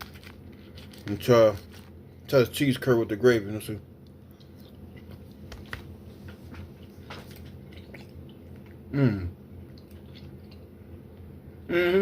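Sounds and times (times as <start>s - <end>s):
chewing and mouth noises: 4.0s - 8.9s, 9.6s - 10.8s
person humming: 8.9s - 9.4s, 11.7s - 12.0s.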